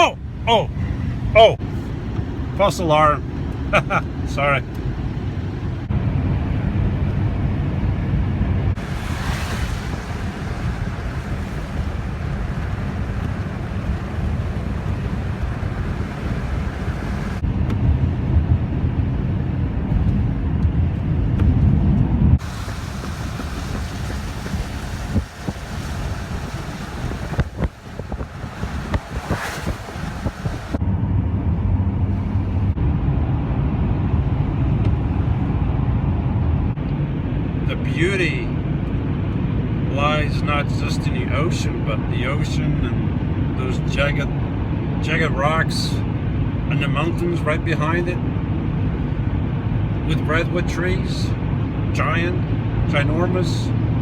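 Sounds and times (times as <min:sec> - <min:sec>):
wind noise: 0:00.0 - 0:37.7
van engine and road rumble: 0:00.0 - 0:54.0.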